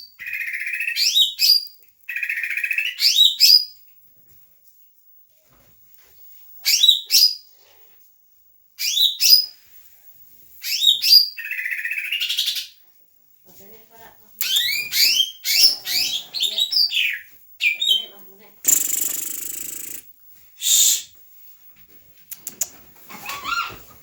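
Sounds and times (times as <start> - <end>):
bird buzzy trill: 18.6 - 20.1
bird whistled sweeps: 18.7 - 20.0.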